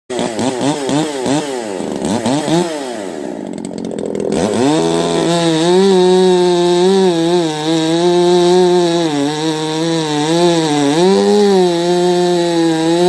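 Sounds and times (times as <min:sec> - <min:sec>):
chainsaw revving: 0:00.1 - 0:13.0.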